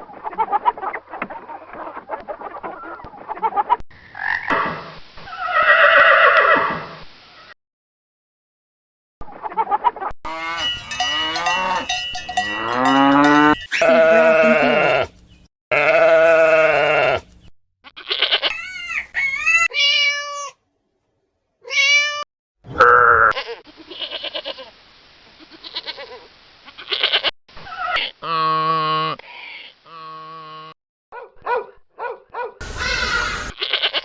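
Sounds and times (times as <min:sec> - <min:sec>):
farm animal calls: 0:10.3 - 0:19.7.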